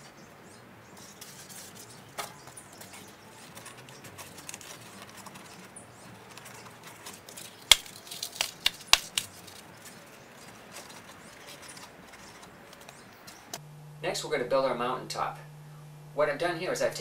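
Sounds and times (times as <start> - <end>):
sharp clicks: 7.4 - 9.6.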